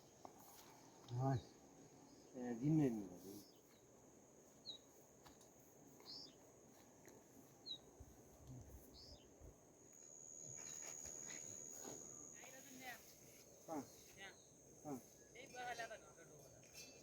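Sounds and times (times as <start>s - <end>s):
faint bird chirps: 4.6s - 5.0s, 6.0s - 6.5s, 7.6s - 7.9s, 8.7s - 9.5s
thin high-pitched whine: 9.8s - 13.4s.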